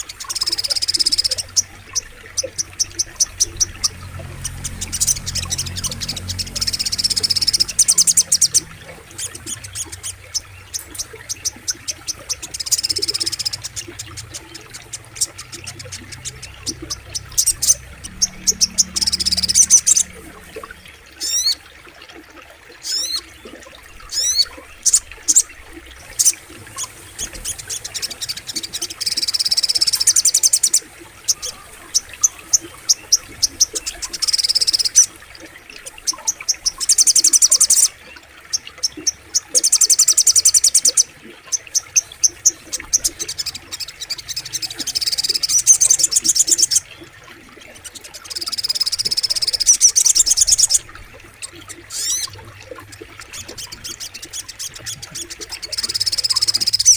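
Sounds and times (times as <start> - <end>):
bird calling sharp chips and trills: 0.0 - 21.7, 22.8 - 56.9
faint low rumble: 13.6 - 21.6.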